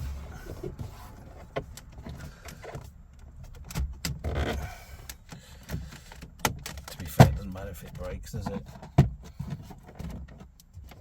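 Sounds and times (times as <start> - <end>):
plastic panel scraping creaks: 0.0 - 5.1.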